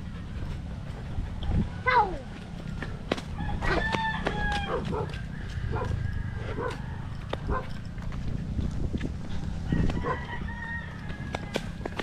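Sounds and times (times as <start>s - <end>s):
wind rumbling on microphone: 0.0s - 1.9s, 2.8s - 12.0s
rooster crowing: 3.3s - 7.6s, 9.4s - 12.0s.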